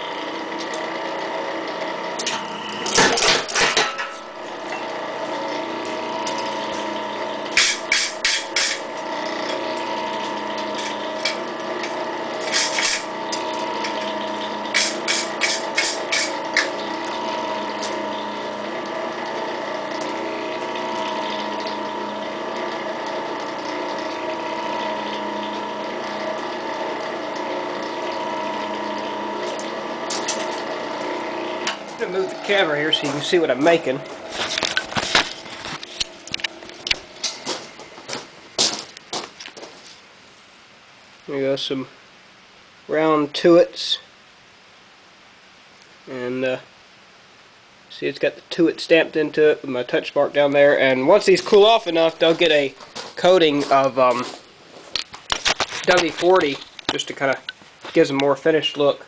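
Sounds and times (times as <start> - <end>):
steady machine hum: 0.0 - 59.0
power hammer striking hot steel: 7.6 - 8.9, 14.7 - 16.8.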